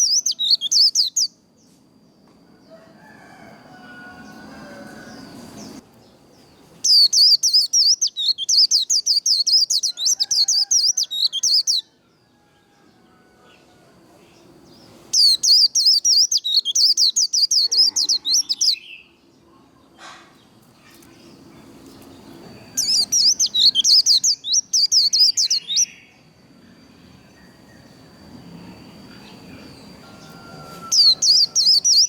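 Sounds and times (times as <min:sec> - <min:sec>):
bird twittering song: 0:00.0 - 0:01.4, 0:04.0 - 0:11.9, 0:14.3 - 0:19.2, 0:20.7 - 0:32.0.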